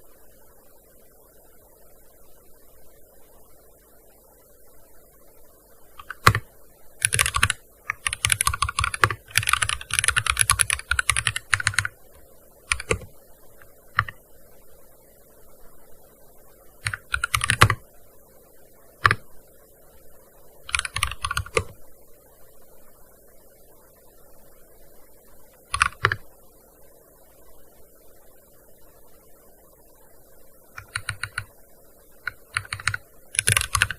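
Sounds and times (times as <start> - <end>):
keyboard key clicks: 6.0 - 6.4.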